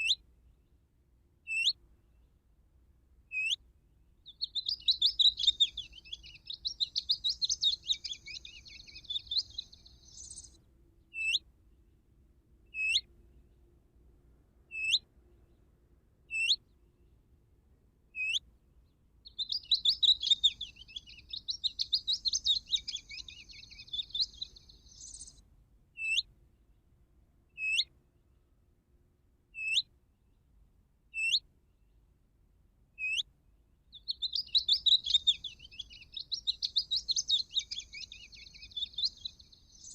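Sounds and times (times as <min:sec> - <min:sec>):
electronic bird caller songbird calls: 0:00.0 - 0:00.2, 0:01.5 - 0:01.8, 0:03.3 - 0:03.6, 0:04.3 - 0:11.4, 0:12.7 - 0:13.1, 0:14.7 - 0:15.0, 0:16.3 - 0:16.6, 0:18.2 - 0:18.4, 0:19.3 - 0:25.4, 0:26.0 - 0:26.3, 0:27.6 - 0:27.9, 0:29.6 - 0:29.9, 0:31.2 - 0:31.4, 0:33.0 - 0:33.3, 0:33.9 - 0:39.9.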